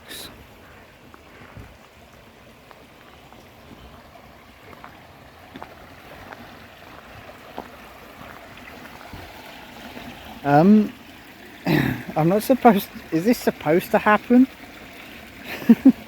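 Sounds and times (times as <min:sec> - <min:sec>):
water running and lapping: 0:00.0 - 0:16.0.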